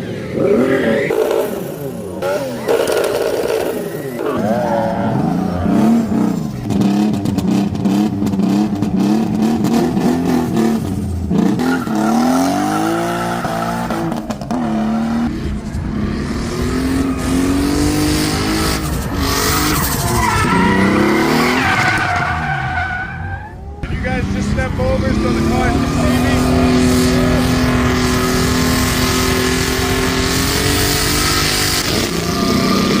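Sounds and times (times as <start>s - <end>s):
car engine revving: 0.0s - 33.0s
tyres squealing: 18.8s - 23.8s.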